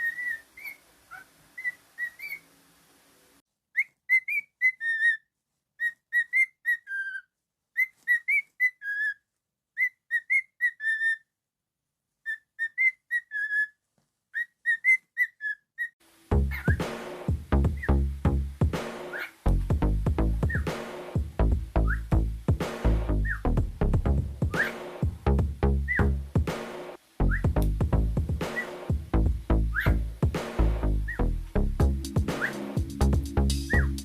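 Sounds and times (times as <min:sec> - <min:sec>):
cockatiel whistling a tune: 0:00.0 - 0:02.4, 0:03.8 - 0:05.2, 0:05.8 - 0:07.2, 0:07.8 - 0:09.2, 0:09.8 - 0:11.2, 0:12.2 - 0:13.7, 0:16.5 - 0:16.8, 0:19.1 - 0:19.4, 0:20.4 - 0:20.7, 0:21.8 - 0:22.1, 0:23.2 - 0:23.5, 0:24.4 - 0:24.8, 0:25.8 - 0:26.1, 0:27.3 - 0:27.6, 0:28.5 - 0:28.8, 0:29.7 - 0:30.0, 0:32.2 - 0:33.0, 0:33.6 - 0:34.0.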